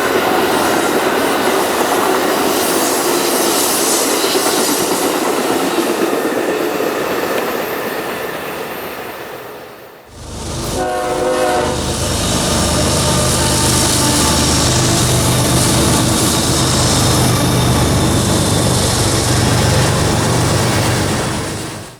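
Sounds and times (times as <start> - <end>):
train rumbling past: 0.0 - 21.9
locomotive horn blast: 10.1 - 21.6.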